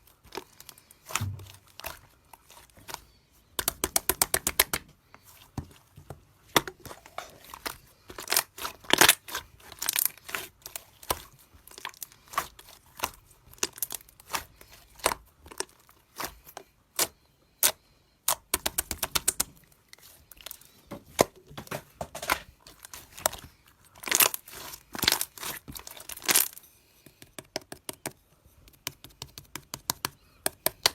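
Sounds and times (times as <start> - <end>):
slime popping and crackling: 6.5 - 16.4, 24.0 - 26.6.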